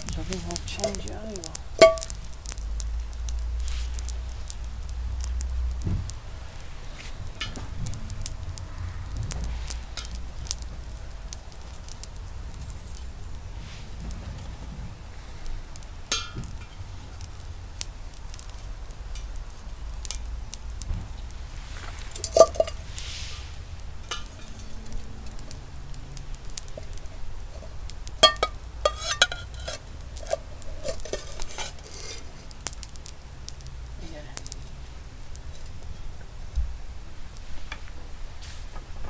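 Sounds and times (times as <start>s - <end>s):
metal cookware clinking: 1.8s - 2.1s, 16.1s - 16.8s, 22.1s - 22.9s, 24.0s - 24.9s, 27.6s - 32.4s.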